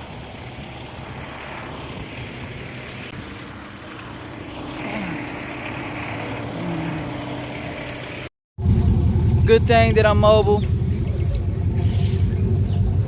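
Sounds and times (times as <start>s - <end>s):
higher hum: 0.0s - 13.0s
motor running: 2.4s - 9.5s.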